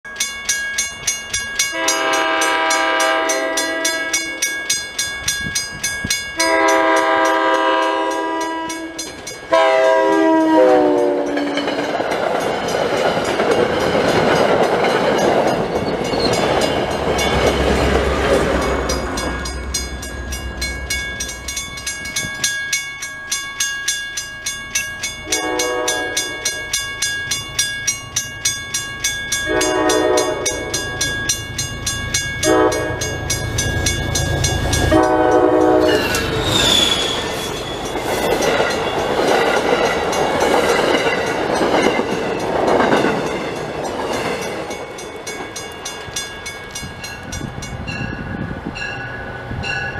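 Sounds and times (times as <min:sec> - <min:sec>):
crossing bell dinging: 0:00.0 - 0:49.9
train horn chime: 0:01.6 - 0:11.9, 0:25.2 - 0:26.8, 0:29.4 - 0:31.5, 0:32.2 - 0:39.2
train rushing past: 0:01.7 - 0:22.7, 0:25.0 - 0:49.9.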